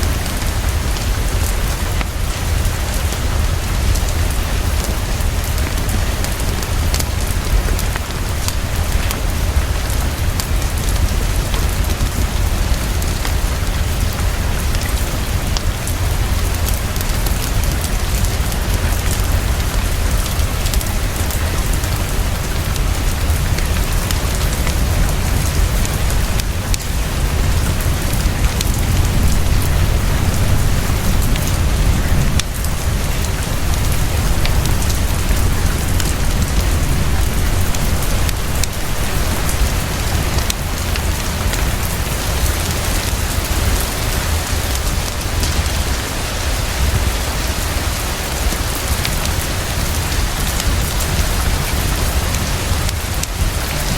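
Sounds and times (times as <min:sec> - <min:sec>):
heavy rainfall: 0:00.0 - 0:53.9.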